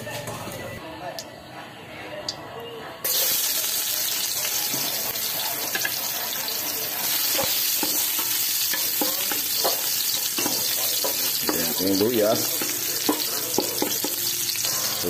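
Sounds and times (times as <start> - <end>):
ginger sizzling in hot oil: 3.0 - 15.0.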